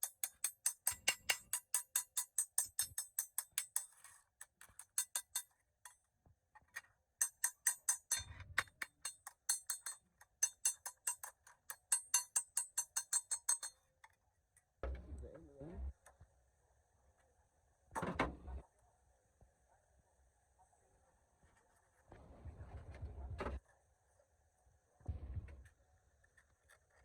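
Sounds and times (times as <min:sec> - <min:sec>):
dull low thumps: 0:25.1 - 0:25.6.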